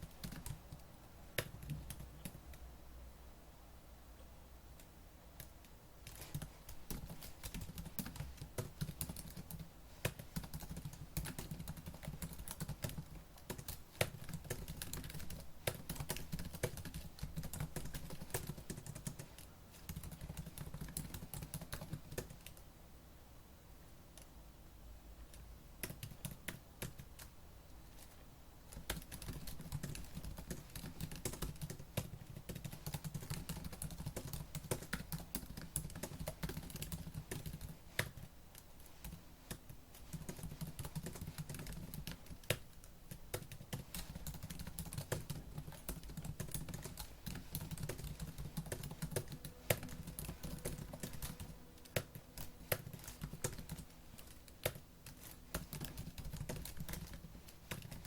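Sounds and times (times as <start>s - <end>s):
fast typing on laptop keyboard: 0.0s - 2.6s, 5.4s - 22.6s, 25.8s - 27.3s, 28.0s - 58.0s.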